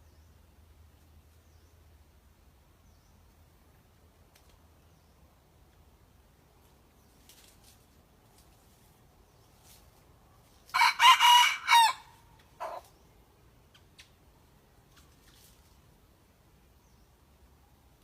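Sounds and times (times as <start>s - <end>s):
young rooster crowing: 10.7s - 12.8s.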